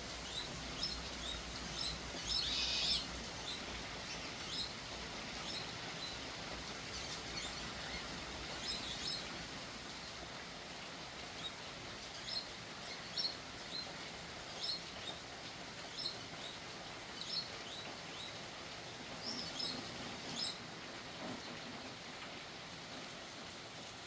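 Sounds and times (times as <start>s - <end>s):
faint steady hiss: 0.0s - 24.0s
small bird chirping: 0.3s - 3.1s.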